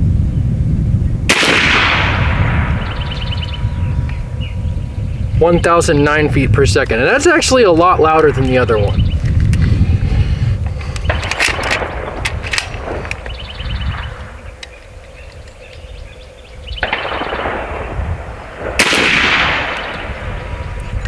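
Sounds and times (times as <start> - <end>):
air rifle shot: 1.3 - 4.3, 11.0 - 14.6, 16.8 - 20.8
air rifle side lever clicking: 11.0 - 13.4.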